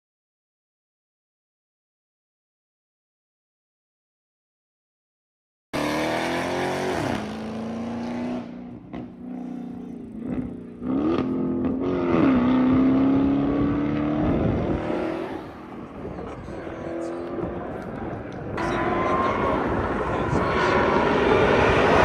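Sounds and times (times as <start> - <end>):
car engine revving: 5.8 - 22.0.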